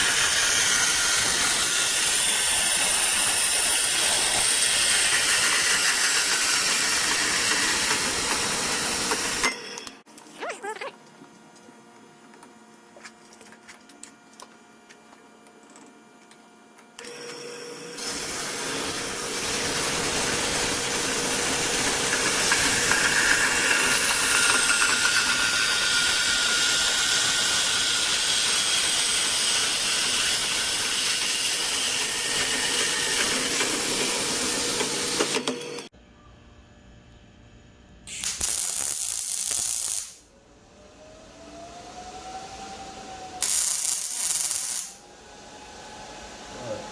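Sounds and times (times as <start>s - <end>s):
power tool hissing on metal: 0.0s - 9.6s, 17.1s - 35.9s, 43.4s - 45.0s.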